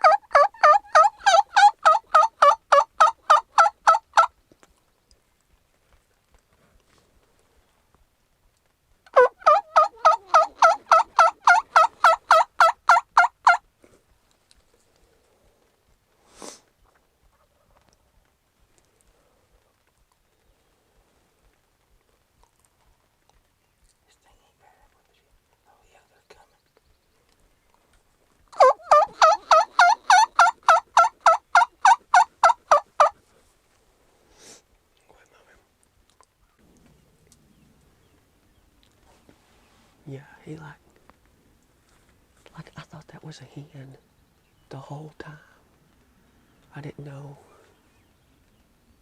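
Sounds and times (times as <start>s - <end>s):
turkey yelping: 0.0s - 4.3s, 9.1s - 13.6s, 28.6s - 33.2s.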